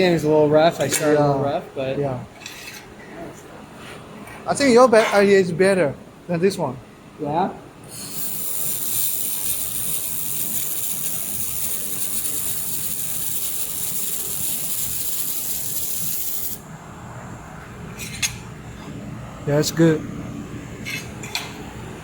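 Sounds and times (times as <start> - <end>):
laser welder torch hissing: 7.9 - 16.6.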